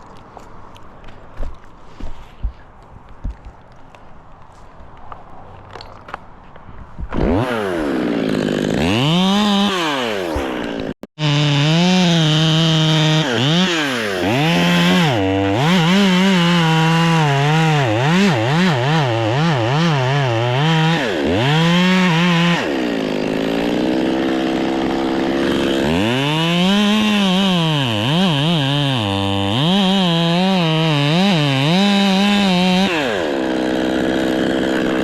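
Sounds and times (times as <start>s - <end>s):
chainsaw engine revving: 7.1s - 35.0s.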